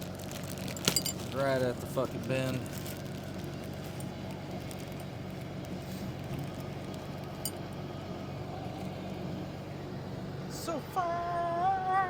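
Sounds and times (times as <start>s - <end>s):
engine idling hum: 0.0s - 12.0s
light metallic clink: 0.7s - 1.4s, 7.4s - 7.8s.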